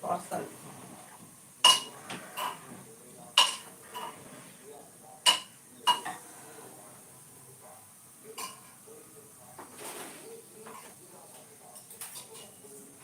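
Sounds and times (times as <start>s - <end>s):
metal utensils clinking on steel: 11.7s - 12.8s.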